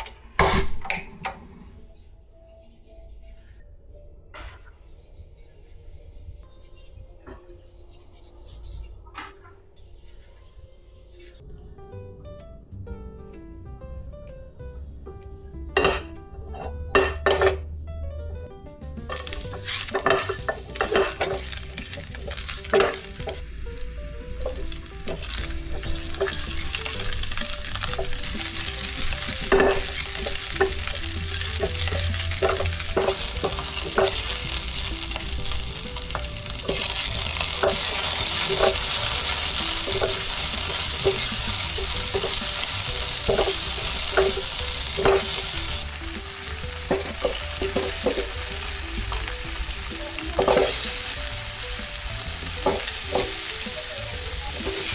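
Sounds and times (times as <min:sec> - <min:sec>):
metal utensil knocking on pan: 0:15.8 - 0:17.6, 0:19.1 - 0:23.8, 0:24.4 - 0:49.4, 0:50.4 - 0:50.9, 0:52.6 - 0:53.6
food sizzling in a pan: 0:19.1 - 0:54.9.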